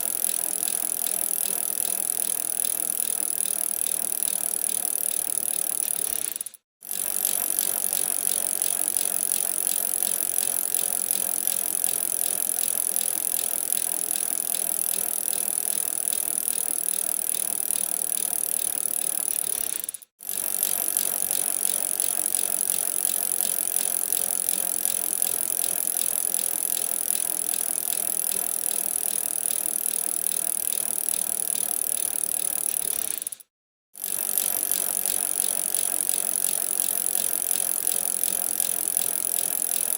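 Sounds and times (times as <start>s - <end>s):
bicycle rattling: 0.0s - 24.6s.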